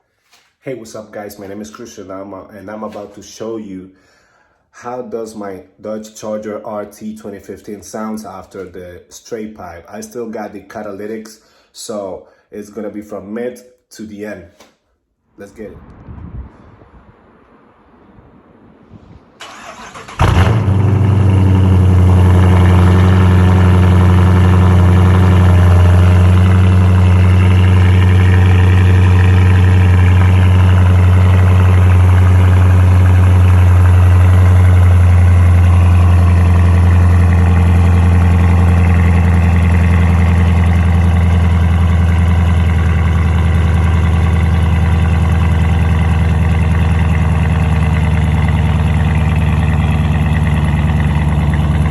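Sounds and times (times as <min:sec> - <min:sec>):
car engine starting and idling: 0:15.8 - 0:51.9.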